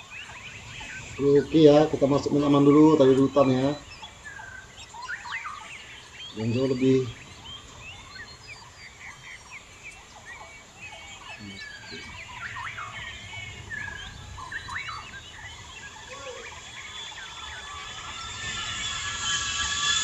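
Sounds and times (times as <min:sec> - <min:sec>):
many birds chirping: 0:00.0 - 0:20.0
low background rumble: 0:07.1 - 0:20.0.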